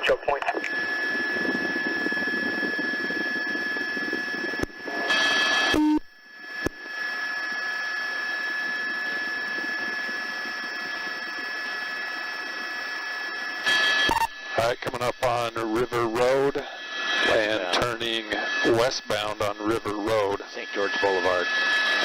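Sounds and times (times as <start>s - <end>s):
radio channel hiss: 0.0s - 1.6s, 13.7s - 22.0s
faint steady tones: 0.0s - 22.0s.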